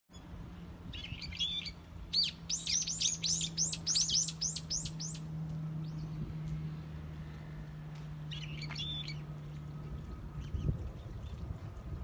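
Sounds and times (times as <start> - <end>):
songbird whistling and chirping: 0.9 - 5.2, 8.3 - 9.2, 10.0 - 11.3.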